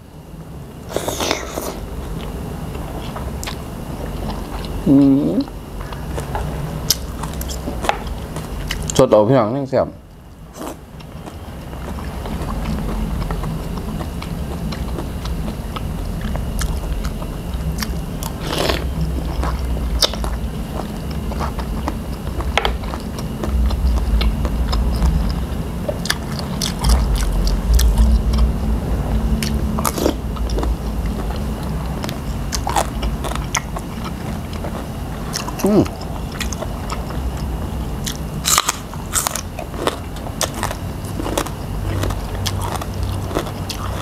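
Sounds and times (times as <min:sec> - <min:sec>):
wet chewing: 0:10.5 - 0:44.0.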